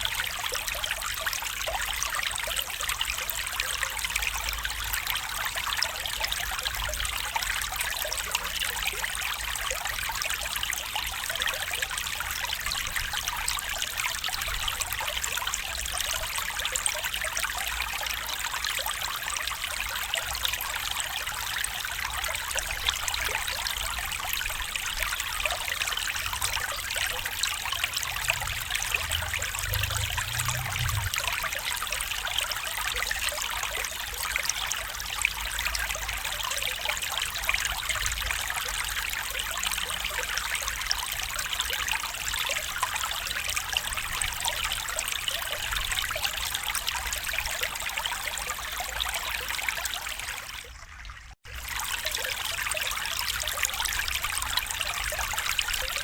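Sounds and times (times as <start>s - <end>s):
stream water trickling: 0.0s - 56.0s.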